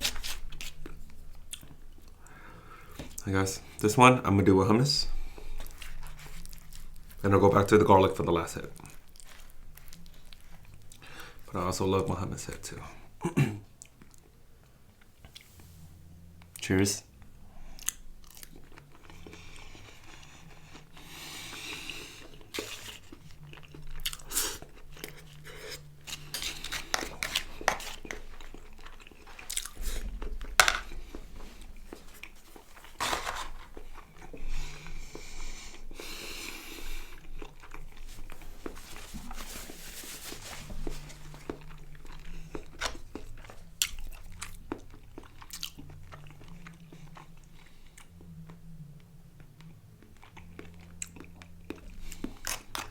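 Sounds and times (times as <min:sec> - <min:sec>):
wet chewing and biting: 0:05.4 - 0:07.2, 0:17.7 - 0:48.6, 0:49.4 - 0:52.9.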